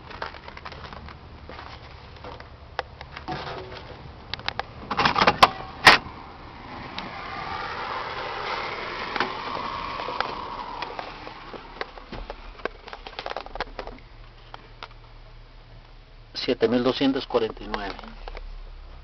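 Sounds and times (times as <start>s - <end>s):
vehicle passing by: 5.5s - 12.6s.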